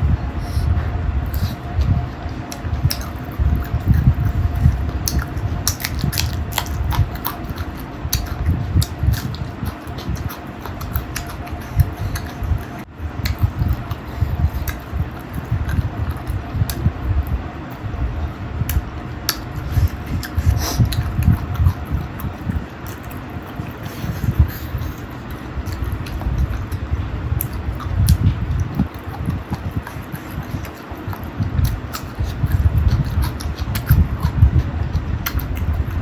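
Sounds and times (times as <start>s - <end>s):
steady background hum: 0.0s - 36.0s
person chewing and sucking: 0.4s - 17.9s, 18.6s - 36.0s
wet clicks and smacks: 2.4s - 17.8s, 27.4s - 35.9s.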